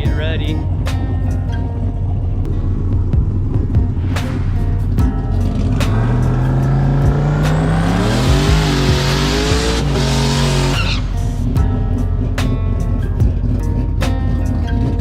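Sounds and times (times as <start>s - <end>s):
song playing: 0.0s - 15.0s
drag car engine revving: 3.5s - 15.0s.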